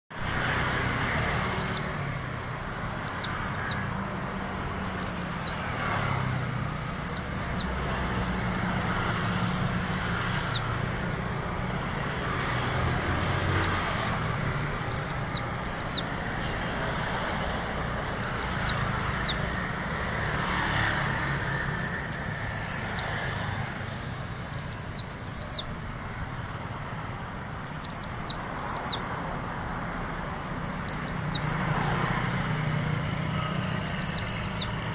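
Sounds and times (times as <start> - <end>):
bird twittering: 0.9 - 29.1, 29.7 - 34.9.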